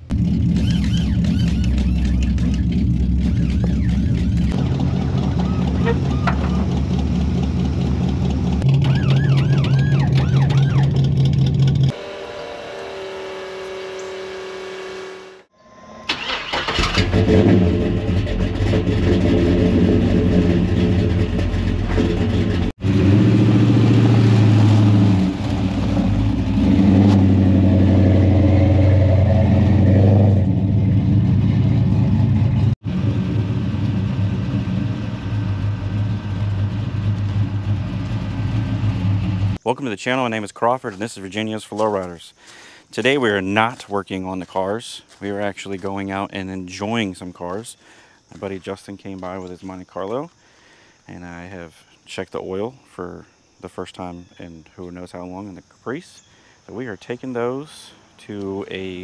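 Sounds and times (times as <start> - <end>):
car engines revving: 0.0 - 15.5, 16.1 - 39.6
engine starting up: 15.9 - 22.7.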